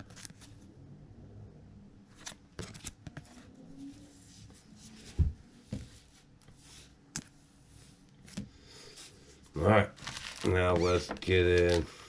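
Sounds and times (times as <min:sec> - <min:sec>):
trading cards clicking and rustling: 0:10.0 - 0:11.9.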